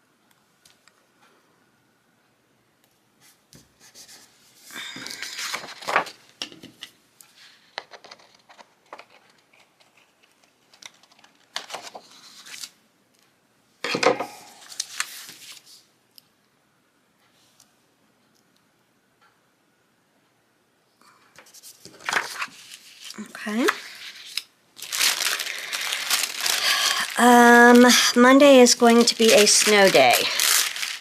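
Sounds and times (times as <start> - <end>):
paper rustling and crackling: 4.8 - 6.3, 7.7 - 12.8, 14.5 - 15.8, 21.4 - 31.0.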